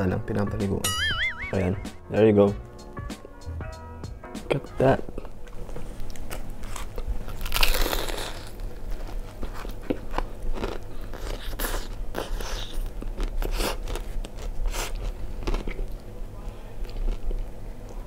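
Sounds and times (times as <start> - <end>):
crunchy chewing: 5.2 - 18.0
crunchy bite into fried chicken: 6.8 - 8.6.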